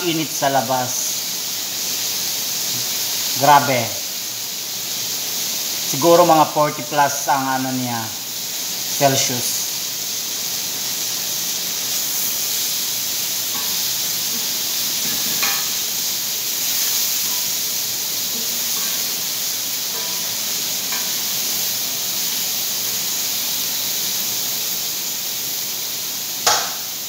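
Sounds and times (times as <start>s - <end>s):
chicken sizzling in oil: 0.0s - 27.0s.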